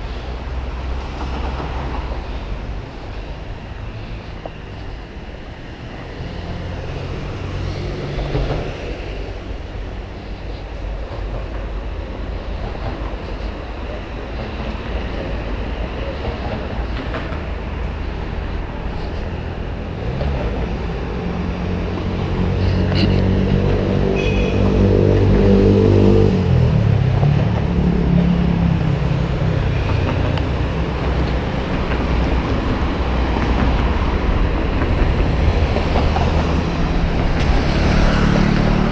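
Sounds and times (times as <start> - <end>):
traffic rumble: 0.0 - 38.9
vehicle engine hum: 0.0 - 38.9.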